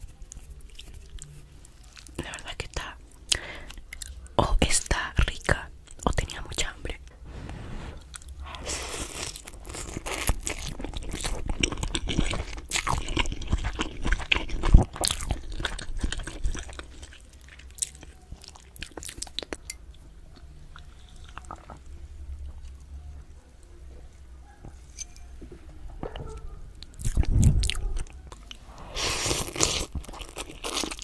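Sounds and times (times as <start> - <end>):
chewing and crunching food: 0.0 - 6.7, 8.0 - 31.0.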